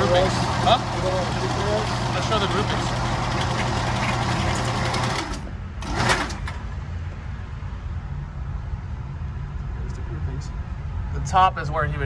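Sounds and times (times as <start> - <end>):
electric motor hum: 0.0 - 6.5.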